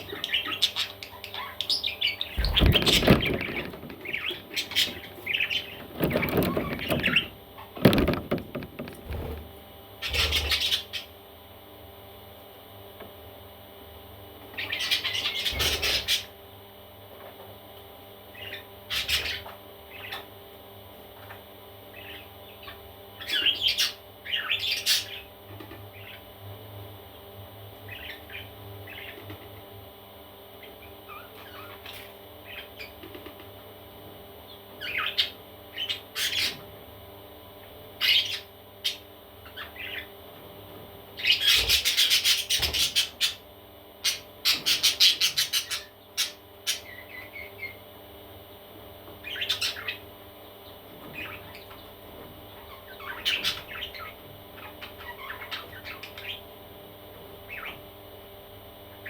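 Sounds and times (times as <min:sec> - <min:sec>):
parrot chicks chirping: 0:00.0 - 0:09.3, 0:10.0 - 0:11.2, 0:14.5 - 0:16.4, 0:18.3 - 0:20.4, 0:21.1 - 0:26.3, 0:27.8 - 0:29.6, 0:30.6 - 0:33.4, 0:34.4 - 0:36.7, 0:37.6 - 0:40.2, 0:41.2 - 0:47.8, 0:48.6 - 0:56.6, 0:57.3 - 0:57.9.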